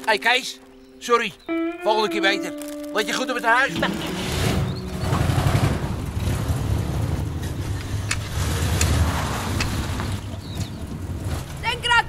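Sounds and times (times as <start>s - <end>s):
car engine rumbling: 3.8s - 12.0s.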